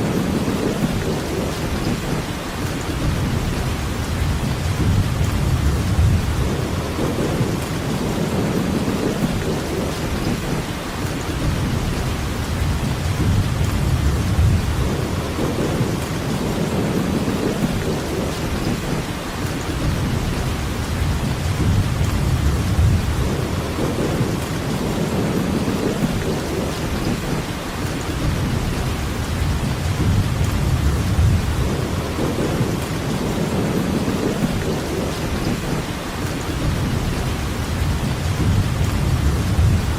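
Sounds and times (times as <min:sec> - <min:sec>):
steady rain hiss: 0:00.0 - 0:39.9
low rumble: 0:28.2 - 0:33.8, 0:36.6 - 0:39.9.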